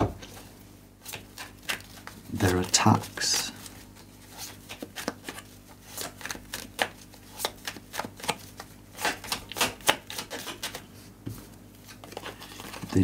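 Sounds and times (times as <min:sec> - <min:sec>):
cards being shuffled: 0:00.1 - 0:13.0.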